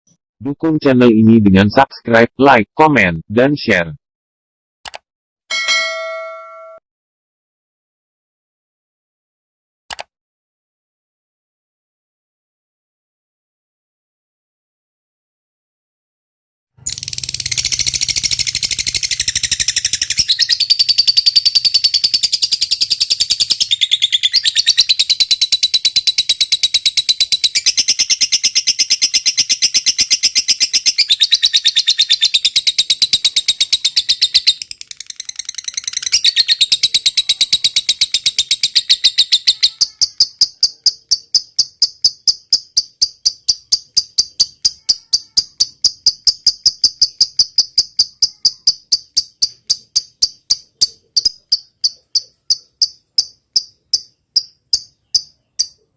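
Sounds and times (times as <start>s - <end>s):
lovebird trilling: 16.8s - 55.9s
insect rhythmic chirping: 16.9s - 23.8s, 32.4s - 55.9s.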